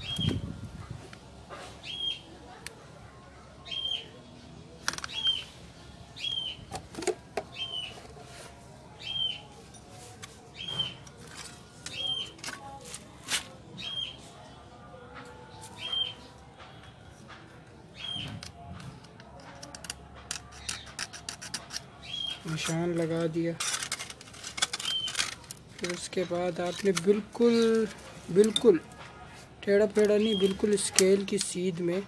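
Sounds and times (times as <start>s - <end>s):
metal clicks and taps on bench: 18.2s - 21.9s
bird chirping: 22.0s - 22.8s, 30.2s - 31.0s.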